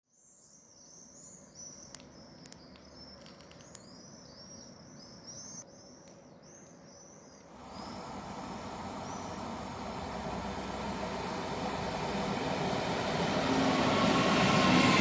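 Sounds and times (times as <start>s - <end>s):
small bird chirping: 0.1s - 8.2s, 8.9s - 10.1s
sharp clicks: 1.9s - 4.0s.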